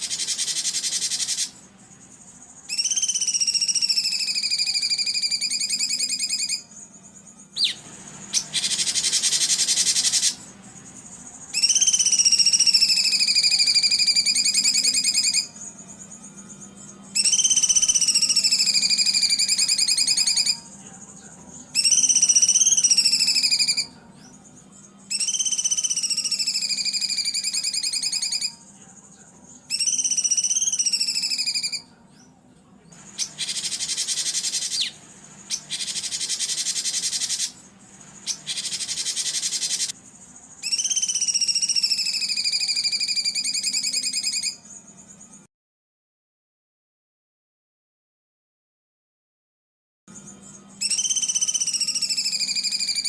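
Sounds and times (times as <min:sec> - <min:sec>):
harsh rasping bird bursts: 0:00.0 - 0:01.6, 0:07.6 - 0:10.7, 0:33.0 - 0:44.2
songbird trilling: 0:00.0 - 0:06.9, 0:07.5 - 0:28.7, 0:29.5 - 0:31.9, 0:33.0 - 0:45.2, 0:50.2 - 0:53.0.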